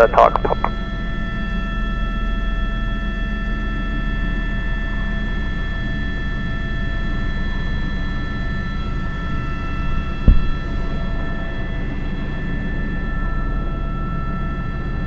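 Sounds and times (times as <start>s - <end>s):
helicopter rotor drone: 0.0s - 15.0s
sharp thump: 10.3s - 10.6s.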